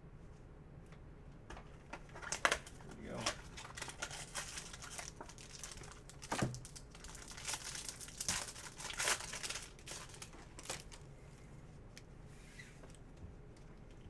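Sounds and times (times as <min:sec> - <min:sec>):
wrapper crinkling and tearing: 0:02.1 - 0:11.1.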